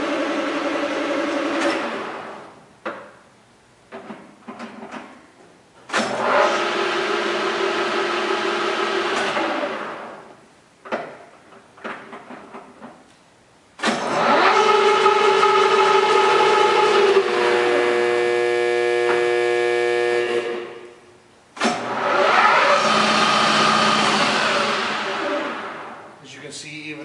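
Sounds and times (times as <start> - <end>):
lathe gear whine: 14.0 - 19.8, 21.8 - 25.9.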